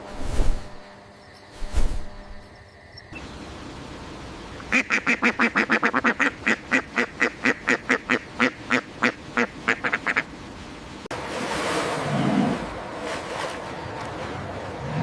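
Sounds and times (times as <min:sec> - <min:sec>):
duck quacking rapidly: 0:04.7 - 0:10.2.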